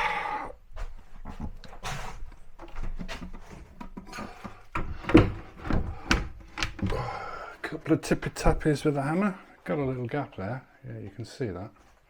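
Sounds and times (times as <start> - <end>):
wall cabinet clicks and knocks: 2.6 - 7.1.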